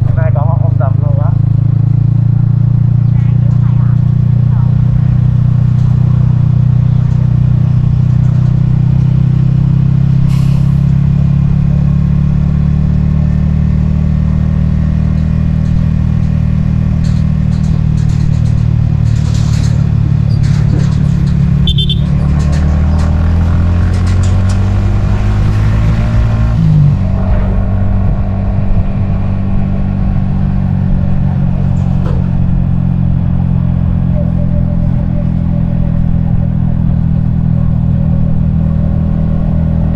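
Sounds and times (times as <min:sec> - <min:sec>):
motorcycle engine running: 0:00.0 - 0:10.3, 0:10.9 - 0:39.9.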